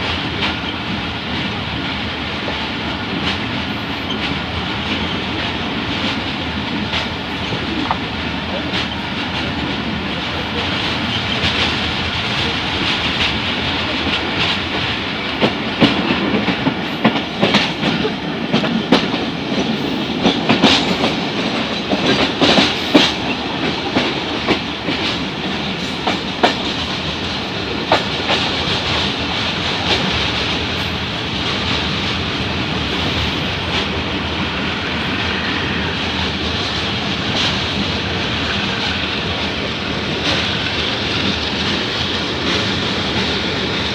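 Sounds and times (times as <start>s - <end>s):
train rush and rumble: 0.0s - 43.9s
wheels clacking over rail joints: 0.0s - 43.9s.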